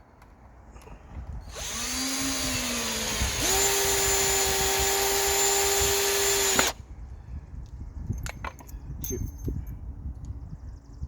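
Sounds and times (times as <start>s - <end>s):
cordless drill motor whine: 1.5s - 6.8s.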